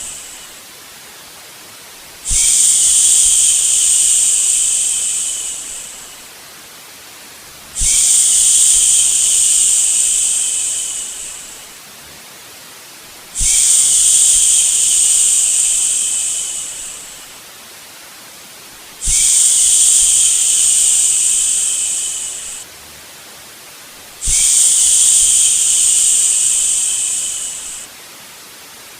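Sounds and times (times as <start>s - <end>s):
white noise hiss: 0.0s - 28.9s
person shushing: 2.3s - 6.2s, 7.8s - 11.6s, 13.4s - 17.2s, 19.0s - 22.6s, 24.2s - 27.9s.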